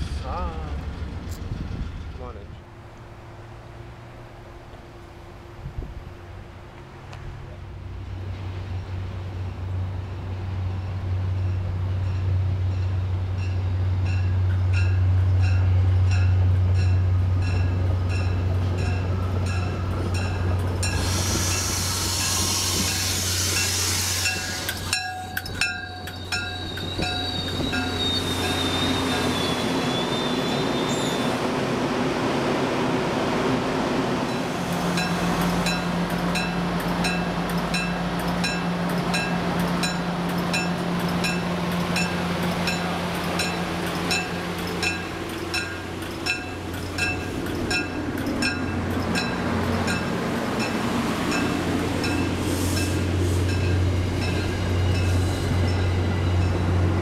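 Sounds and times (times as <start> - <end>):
diesel train engine rumble: 0.0 - 57.0
burst of hiss: 20.9 - 24.8
bell dinging: 24.9 - 28.0
wheel squeal: 25.9 - 31.4.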